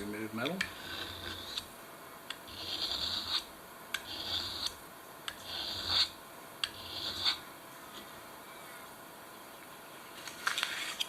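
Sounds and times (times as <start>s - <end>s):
knife scraping sharpening stone: 0.6s - 1.7s, 2.5s - 7.4s.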